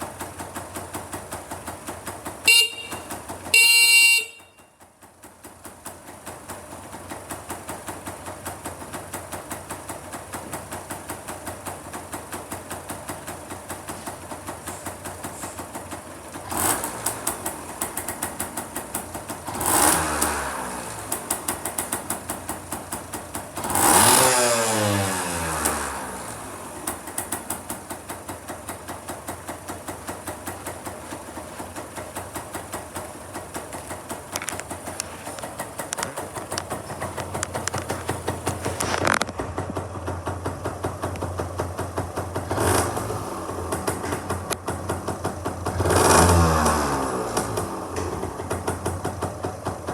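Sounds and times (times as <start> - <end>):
mini bike engine idling: 0.0 - 49.9
engine revving: 16.3 - 27.8, 40.8 - 49.9.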